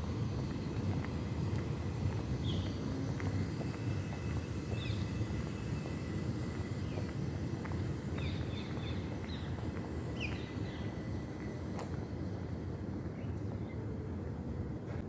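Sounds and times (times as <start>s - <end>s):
footsteps: 0.0s - 12.1s
steady low rumble: 0.0s - 15.0s
small birds chirping: 1.8s - 3.0s, 3.6s - 11.4s.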